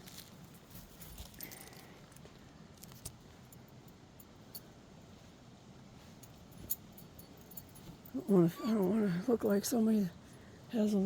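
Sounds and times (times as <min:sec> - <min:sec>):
fabric rustling: 0:04.6 - 0:09.2.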